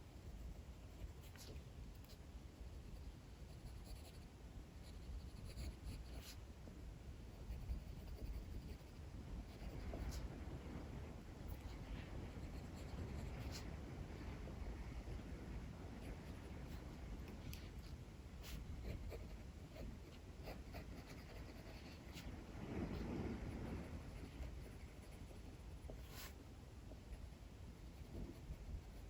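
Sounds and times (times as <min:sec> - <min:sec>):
pencil scratching on paper: 0:00.2 - 0:06.4, 0:07.3 - 0:10.2, 0:17.8 - 0:22.3, 0:22.9 - 0:26.4, 0:27.1 - 0:29.0
strong wind rumble: 0:06.8 - 0:29.0.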